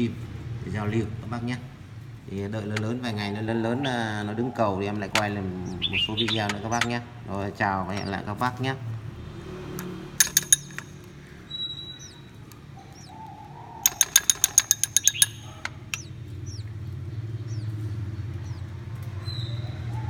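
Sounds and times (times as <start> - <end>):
small birds chirping: 0.0 - 20.0
rapid sharp clicks: 5.0 - 7.2, 9.8 - 19.2.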